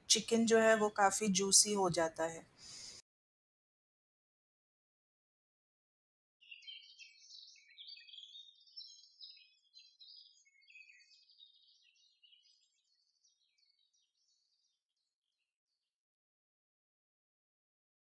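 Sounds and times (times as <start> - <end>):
faint bird chirping: 6.4 - 14.8.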